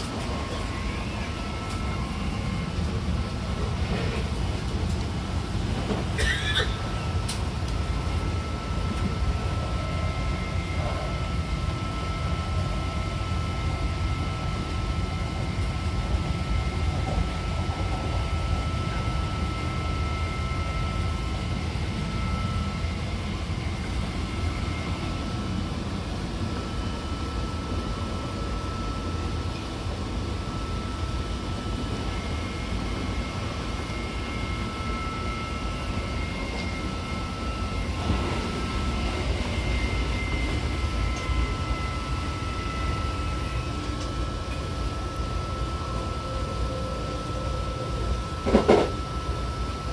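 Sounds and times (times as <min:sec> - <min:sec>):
high traction inverter whine: 0:00.0 - 0:49.9
train wheels rumbling on rail: 0:00.0 - 0:49.9.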